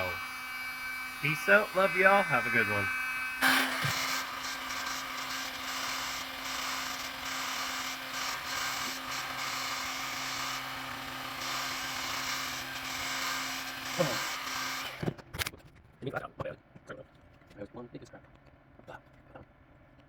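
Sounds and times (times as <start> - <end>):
power tool whirring: 0.0 - 15.2.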